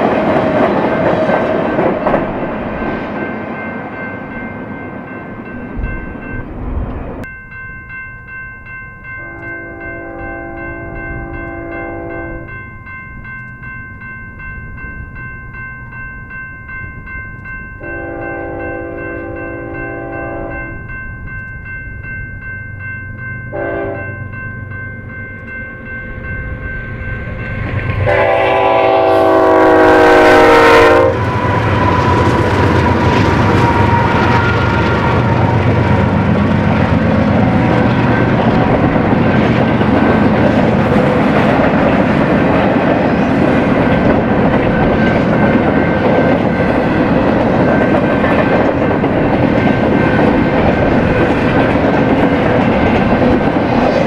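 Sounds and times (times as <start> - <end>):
train wheels clattering on rails: 0.0 - 7.2, 31.1 - 54.0
locomotive horn blasts: 9.2 - 12.5, 17.8 - 20.7, 23.5 - 24.1, 28.0 - 32.0.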